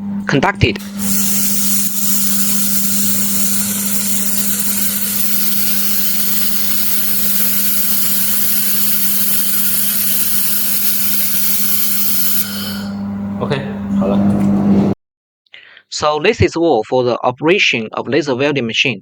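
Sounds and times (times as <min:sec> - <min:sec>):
welding gas hiss: 0:00.8 - 0:13.0
welding machine hum: 0:00.8 - 0:13.3.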